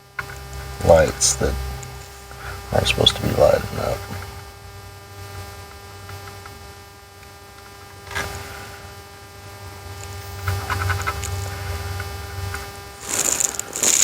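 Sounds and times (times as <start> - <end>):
electrical hum: 0.0 - 14.0
small ticks and crackles: 6.0 - 8.4, 9.9 - 14.0.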